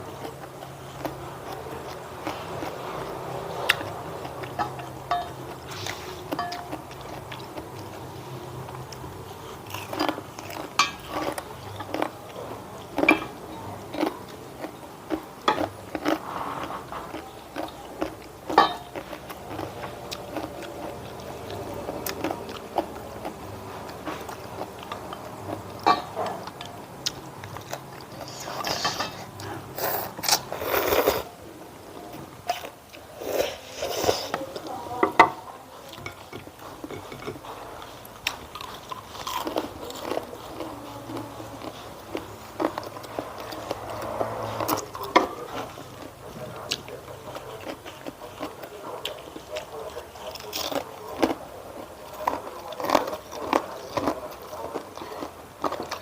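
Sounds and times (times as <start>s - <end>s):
food chewing and crunching: 0.0s - 56.0s.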